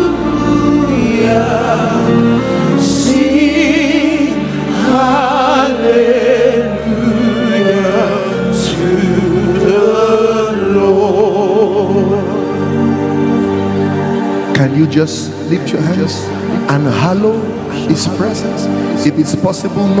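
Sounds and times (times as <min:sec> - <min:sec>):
person singing with vibrato: 0:00.0 - 0:13.8
sustained musical accompaniment: 0:00.0 - 0:20.0.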